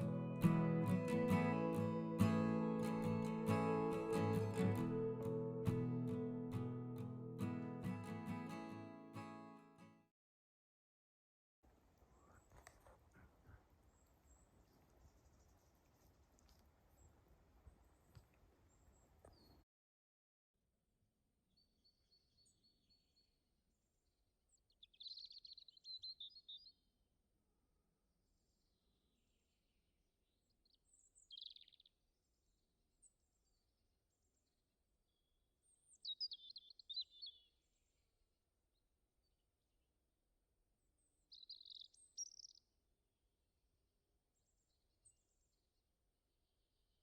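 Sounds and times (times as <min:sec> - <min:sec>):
faint high chirps: 0:00.0 - 0:08.5
songbird singing high notes: 0:00.0 - 0:08.6.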